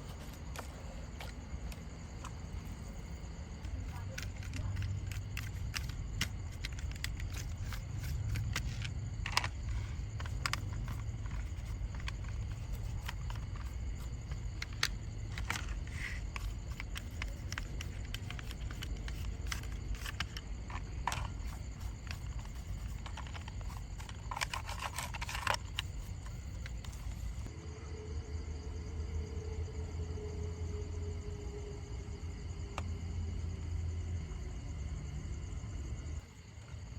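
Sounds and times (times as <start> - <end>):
scraping: 0.0 - 27.5.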